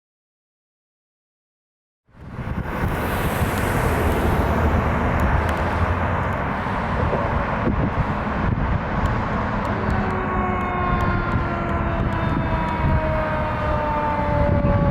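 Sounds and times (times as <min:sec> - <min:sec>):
diesel engine rumbling: 0:02.2 - 0:14.9
siren sliding downward: 0:02.5 - 0:06.2, 0:09.5 - 0:14.9.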